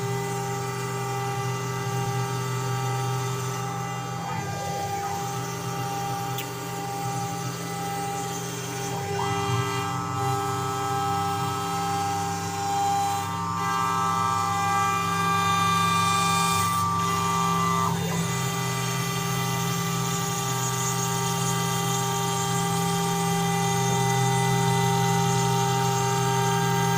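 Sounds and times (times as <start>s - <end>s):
low machine hum: 0.0s - 15.4s
cnc router whine: 0.0s - 26.9s.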